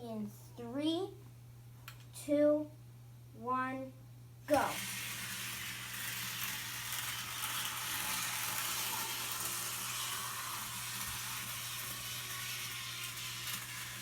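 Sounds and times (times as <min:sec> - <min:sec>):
model train motor hum: 0:04.5 - 0:14.0
wheels hissing on rails: 0:04.6 - 0:14.0.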